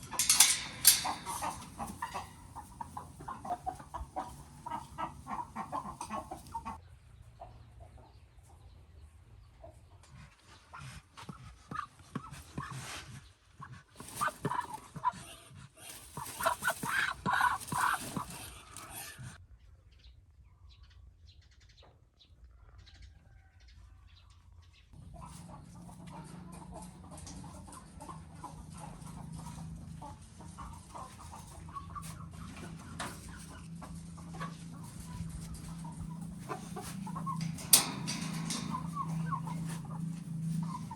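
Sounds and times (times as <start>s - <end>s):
chickens clucking: 0.0s - 19.4s, 22.7s - 40.9s
low steady hum: 25.0s - 40.9s.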